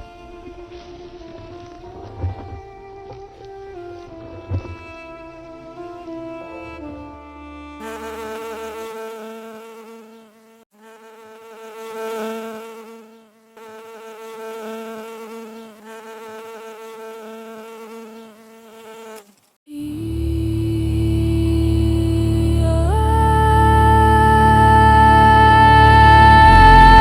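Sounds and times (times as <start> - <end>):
bee buzzing in flight: 0.0 - 6.4, 7.8 - 19.5.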